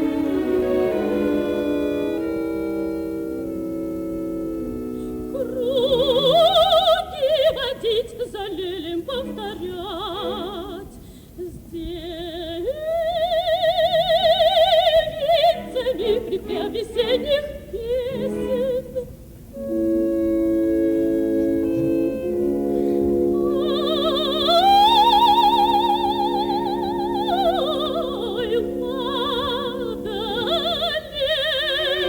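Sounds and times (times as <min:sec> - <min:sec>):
orchestral chords: 0:00.0 - 0:06.4, 0:19.5 - 0:32.0
operatic soprano singing: 0:00.0 - 0:32.0.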